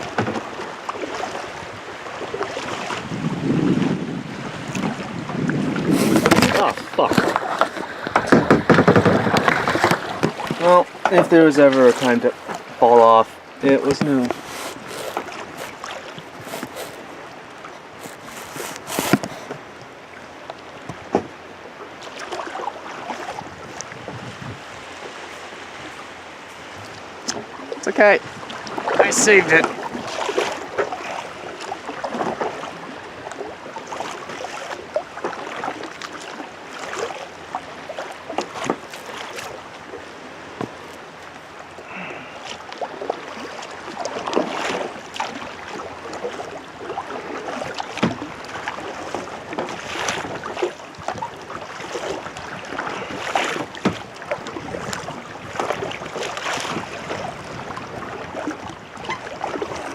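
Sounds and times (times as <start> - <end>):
kayak paddle splashing: 0.0 - 59.9
water sloshing against hull: 0.0 - 59.9
wind on microphone: 1.5 - 10.6, 23.2 - 30.6, 49.7 - 59.9.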